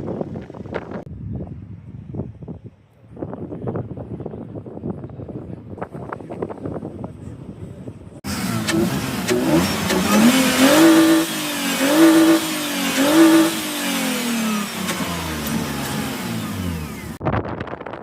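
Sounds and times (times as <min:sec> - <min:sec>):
car engine revving: 0:08.3 - 0:17.2.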